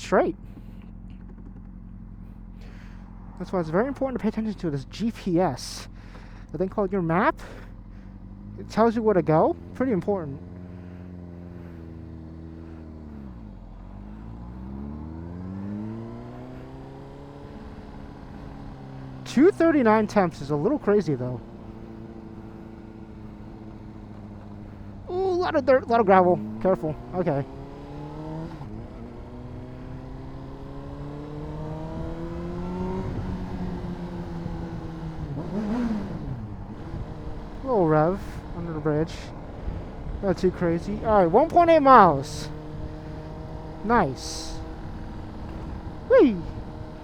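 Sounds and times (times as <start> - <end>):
motorcycle engine while riding: 0.0 - 47.0.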